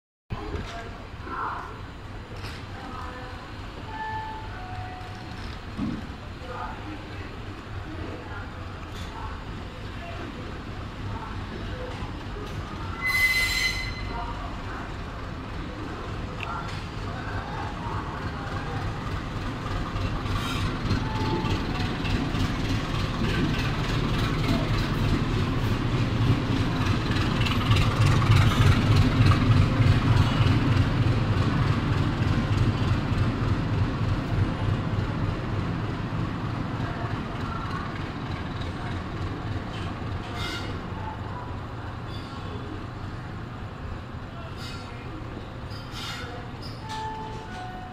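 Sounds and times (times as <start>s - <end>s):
diesel locomotive engine rumble: 0.3s - 47.9s
clickety-clack of train wheels: 2.3s - 2.8s, 5.0s - 6.2s, 11.5s - 14.1s, 15.2s - 41.3s.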